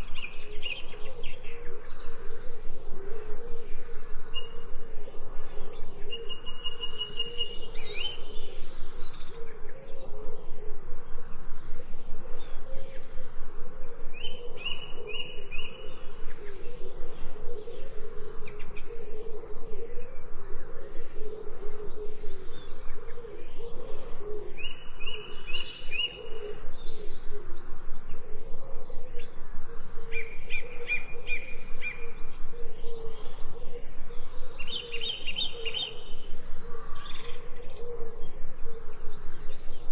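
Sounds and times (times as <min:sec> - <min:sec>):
birds warbling: 0:12.3 - 0:39.9.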